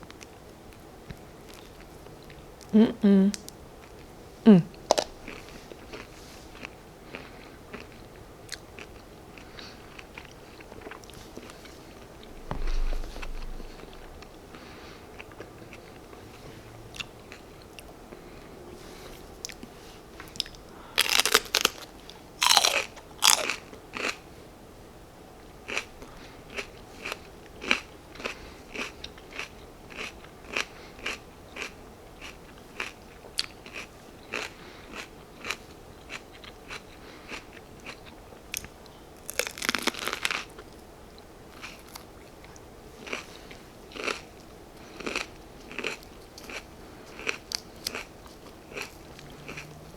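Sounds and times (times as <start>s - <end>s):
crunchy chewing: 4.8s - 18.4s, 19.0s - 24.3s, 25.6s - 49.9s
crunchy bites into pepper: 21.0s - 21.8s.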